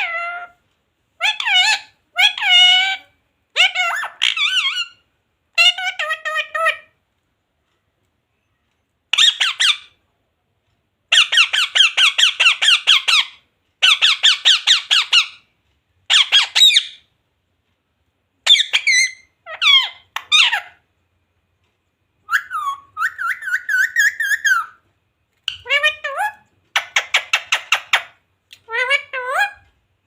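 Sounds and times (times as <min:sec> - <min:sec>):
parrot squawking: 0:00.0 - 0:00.6, 0:01.2 - 0:07.0, 0:09.1 - 0:10.0, 0:11.1 - 0:15.5, 0:16.1 - 0:17.1, 0:18.4 - 0:20.8, 0:22.2 - 0:24.8, 0:25.5 - 0:29.6.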